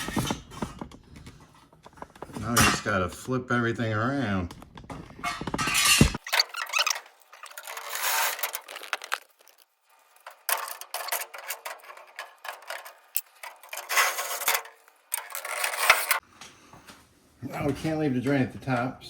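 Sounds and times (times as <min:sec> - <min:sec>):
plastic parts rubbing and scraping: 0:00.0 - 0:03.2, 0:04.4 - 0:16.2.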